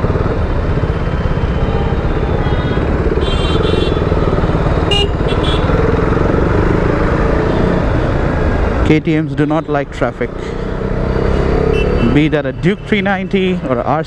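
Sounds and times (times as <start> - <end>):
motorcycle engine running: 0.0 - 8.8
vehicle horns honking: 2.3 - 4.2, 4.8 - 5.8, 11.6 - 12.3.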